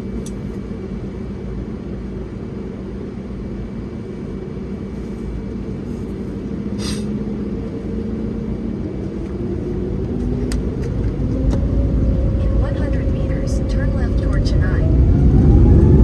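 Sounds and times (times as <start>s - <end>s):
jet engines rumbling: 0.0s - 16.0s
short hiss: 6.8s - 7.1s.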